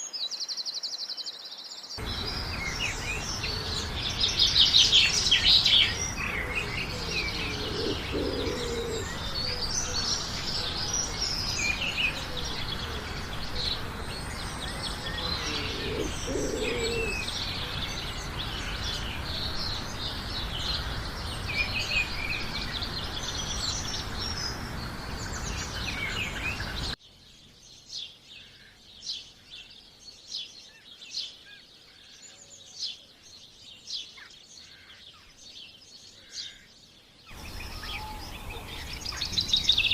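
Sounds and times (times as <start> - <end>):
background hiss: 0.0 - 32.2, 35.5 - 39.9
small birds chirping: 0.0 - 39.9
lower bird calls: 2.0 - 27.0.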